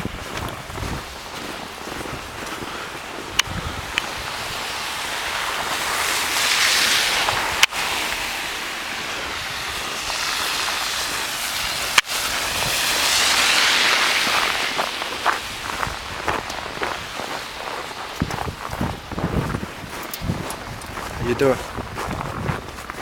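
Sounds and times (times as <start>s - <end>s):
tyre hiss of passing vehicles: 1.1s - 19.2s.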